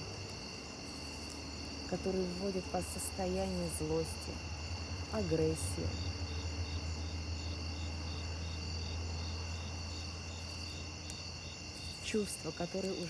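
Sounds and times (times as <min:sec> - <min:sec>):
cricket chirping in pulses: 0:00.0 - 0:13.0
crickets trilling: 0:00.0 - 0:13.0.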